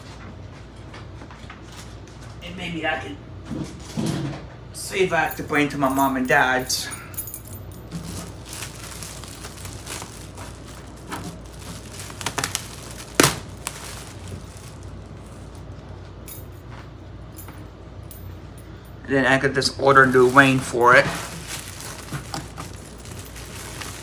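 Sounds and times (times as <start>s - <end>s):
handling clicks and rustles: 5.3s - 18.3s, 20.0s - 24.0s.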